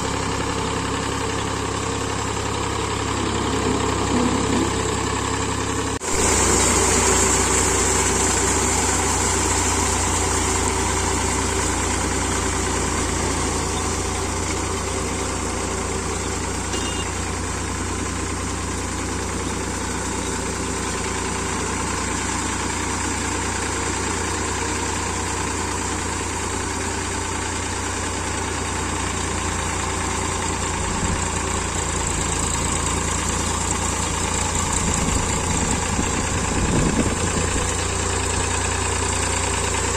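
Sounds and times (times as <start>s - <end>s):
tractor diesel engine rumbling: 0.0s - 39.9s.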